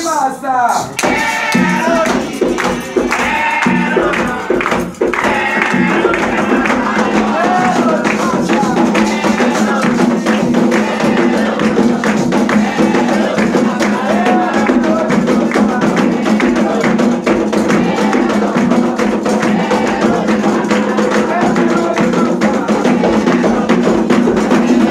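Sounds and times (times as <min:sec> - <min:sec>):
hand drums and percussion: 0:00.0 - 0:24.9
voices chanting: 0:00.8 - 0:24.9.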